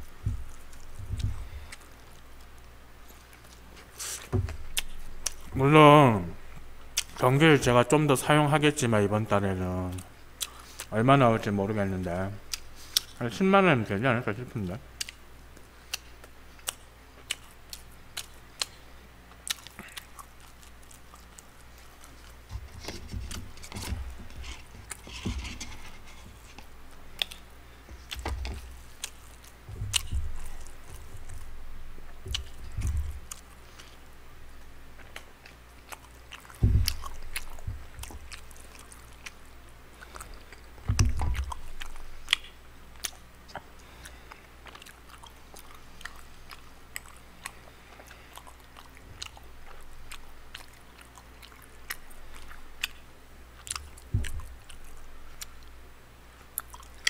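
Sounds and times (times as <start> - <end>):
chewing and smacking: 0.0 - 5.6, 6.4 - 7.2, 9.8 - 11.5, 12.5 - 13.2, 15.0 - 55.8, 56.4 - 57.0
dull thumps: 0.1 - 1.8, 4.2 - 5.7, 29.7 - 31.6, 32.2 - 33.4, 36.6 - 38.4, 40.8 - 41.6, 53.8 - 54.7.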